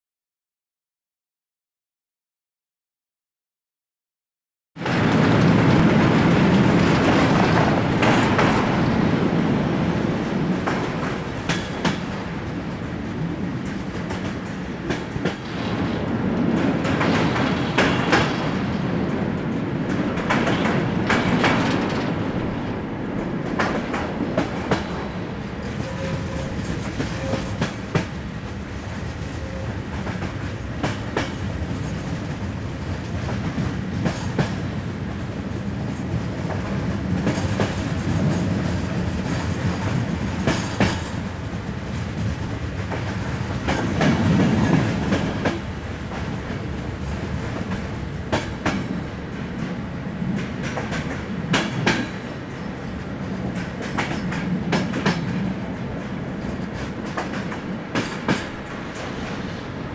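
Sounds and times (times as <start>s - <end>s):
train carriage rumbling: 4.8s - 59.9s
wheels clicking over rail joints: 10.4s - 32.5s.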